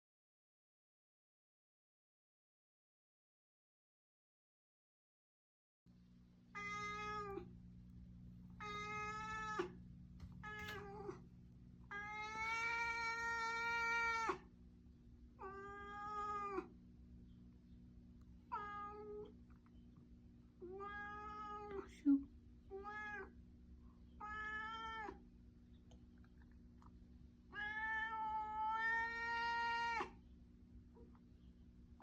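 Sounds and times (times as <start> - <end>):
steady low hum: 5.9 - 16.0
cat yowling: 6.6 - 7.5, 8.6 - 9.8, 11.9 - 14.5, 15.4 - 16.7, 18.5 - 19.3, 20.7 - 21.8, 22.8 - 23.3, 24.2 - 25.2, 27.5 - 30.2.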